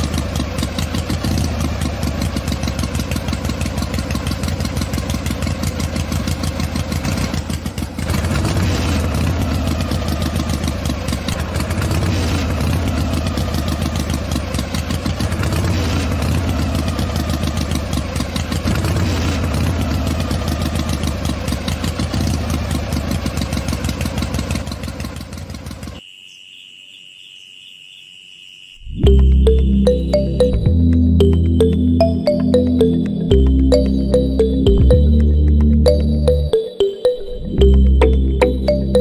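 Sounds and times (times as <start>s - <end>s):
small engine running: 0.0s - 26.0s.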